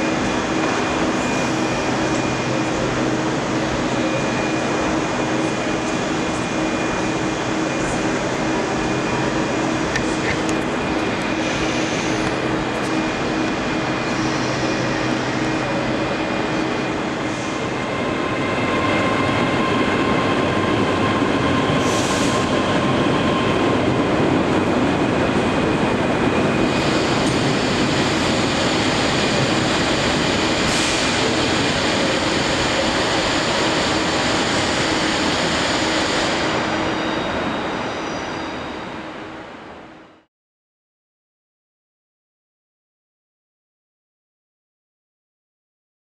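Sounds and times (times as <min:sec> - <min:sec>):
train rail rumble: 0:00.0 - 0:38.7.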